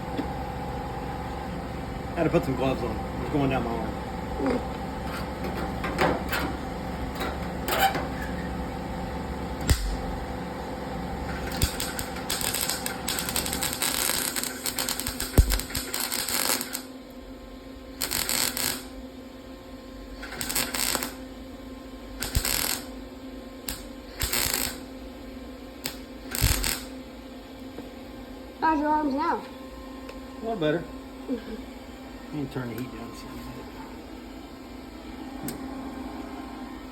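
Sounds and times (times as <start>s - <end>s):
wire-feed welder crackling: 9.6s - 10.2s, 11.2s - 16.9s, 18.0s - 18.9s, 20.1s - 21.3s, 22.2s - 23.0s, 23.6s - 24.9s, 25.8s - 26.9s.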